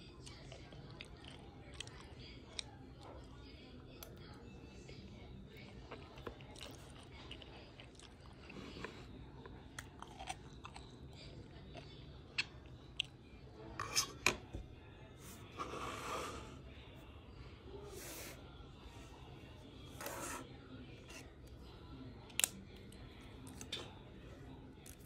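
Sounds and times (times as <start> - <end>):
chewing and mouth sounds: 0.2 - 3.3, 5.6 - 13.2.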